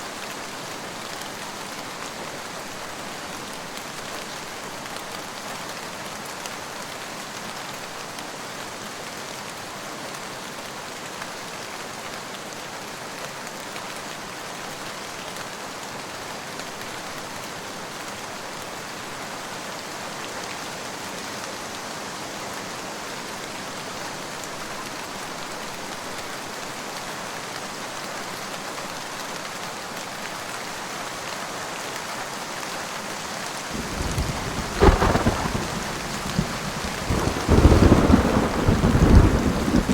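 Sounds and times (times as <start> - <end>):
heavy rain falling: 0.0 - 39.9
thunderclap: 33.8 - 39.9.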